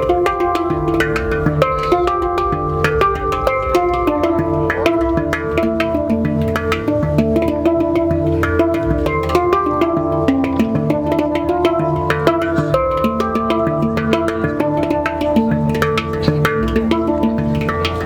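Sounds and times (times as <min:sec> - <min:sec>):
deep bass tone: 0:00.0 - 0:12.1
handpan notes ringing: 0:00.0 - 0:18.0
percussive taps: 0:00.0 - 0:18.0.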